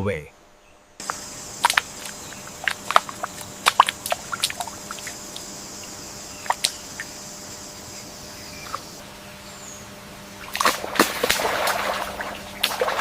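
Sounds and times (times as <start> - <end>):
high insect drone: 0.2 - 13.0
water drips and plops: 1.0 - 5.5, 6.4 - 7.1, 10.5 - 13.0.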